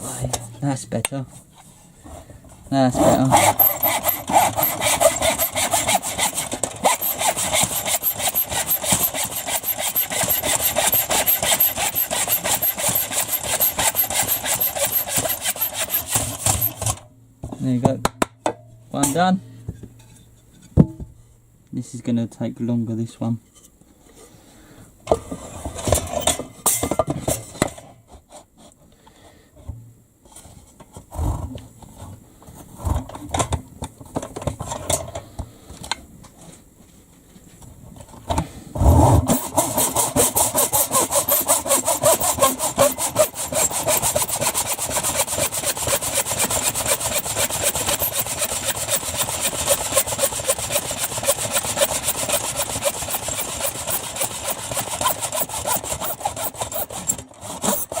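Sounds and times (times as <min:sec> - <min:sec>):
hand saw strokes: 0:03.0 - 0:17.0, 0:39.3 - 0:58.0.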